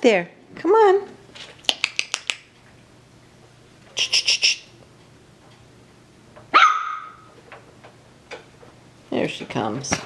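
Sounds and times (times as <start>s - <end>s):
puppy yapping: 6.5s - 7.3s.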